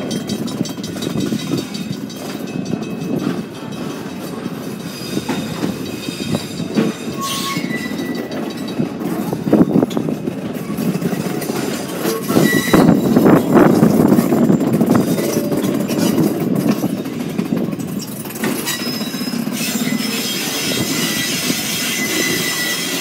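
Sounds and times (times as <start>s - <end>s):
rail car rumbling on track: 0.0s - 23.0s
faint wheel squeal: 7.1s - 8.3s, 12.2s - 13.1s, 18.6s - 23.0s.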